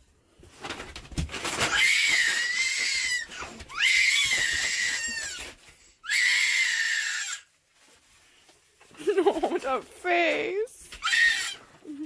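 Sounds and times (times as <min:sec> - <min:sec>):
young child screaming: 0:01.7 - 0:05.4, 0:06.0 - 0:07.5, 0:11.0 - 0:11.6.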